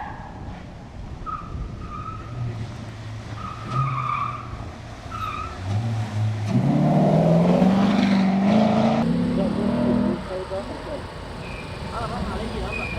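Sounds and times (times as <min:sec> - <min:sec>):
tire squeal: 0:00.0 - 0:00.6, 0:01.2 - 0:02.6, 0:03.3 - 0:06.0, 0:11.4 - 0:12.9
car engine revving: 0:04.4 - 0:12.9.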